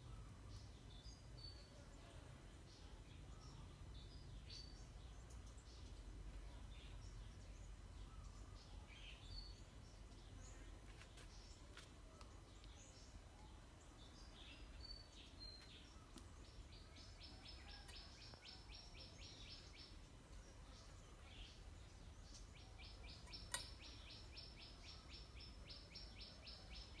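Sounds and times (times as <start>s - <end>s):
faint bird chirping: 0.0s - 27.0s
sharp click: 23.2s - 23.9s.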